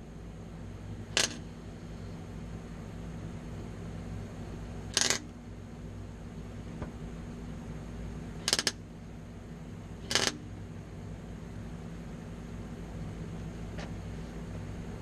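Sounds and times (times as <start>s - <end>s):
steady low hum: 0.0s - 15.0s
crackling tack welds: 4.9s - 5.3s, 8.4s - 8.8s, 10.0s - 10.4s.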